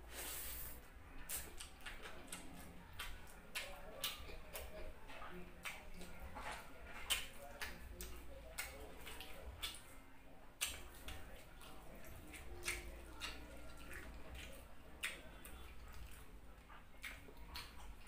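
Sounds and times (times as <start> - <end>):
wet chewing and lip smacking: 1.2 - 9.9, 10.6 - 18.0.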